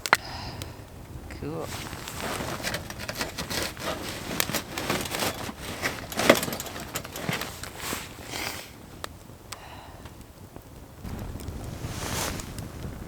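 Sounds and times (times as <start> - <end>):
campfire crackling and popping: 0.0 - 2.9, 7.6 - 13.0.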